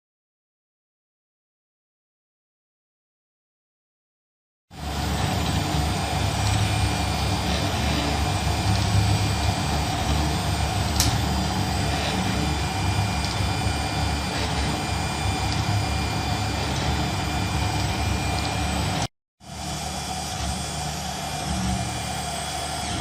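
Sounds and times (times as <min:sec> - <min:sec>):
three d printer fans and motors humming: 0:04.8 - 0:23.0.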